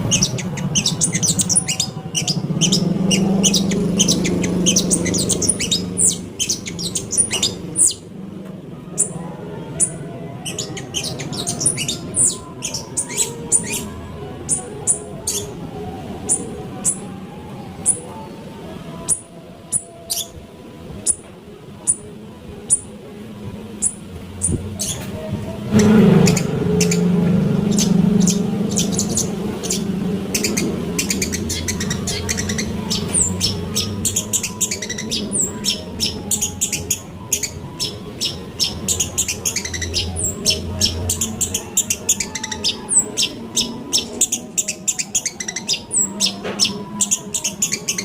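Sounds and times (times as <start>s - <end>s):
shrike chattering: 0.0s - 8.0s, 25.7s - 48.0s
steady low hum: 0.0s - 45.1s.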